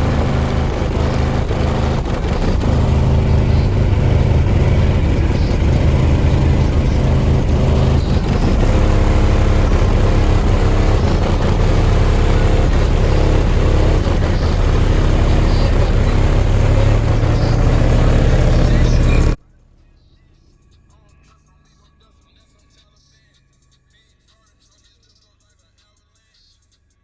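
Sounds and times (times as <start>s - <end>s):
bass-heavy music through subwoofers: 0.0s - 19.4s.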